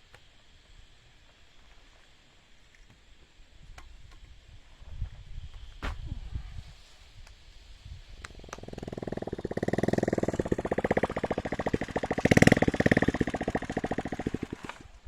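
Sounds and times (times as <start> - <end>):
small engine chugging: 8.1 - 15.0.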